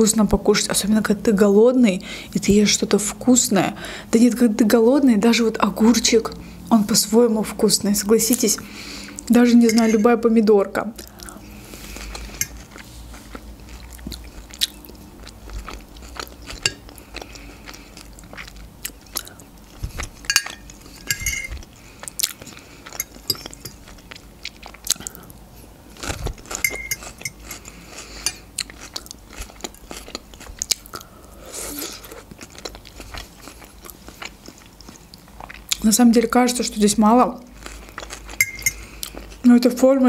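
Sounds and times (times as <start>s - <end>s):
chewing and crunching salad: 8.2s - 39.8s
metal fork scraping glass dish: 9.7s - 10.1s, 20.3s - 21.5s, 26.6s - 27.4s, 38.4s - 38.8s.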